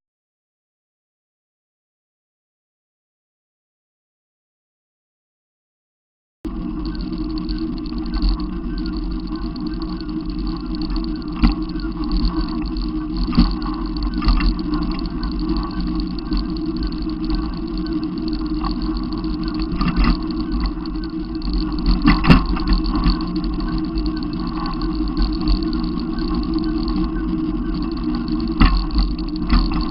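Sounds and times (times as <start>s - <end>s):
motor vehicle rumbling: 6.5s - 29.9s.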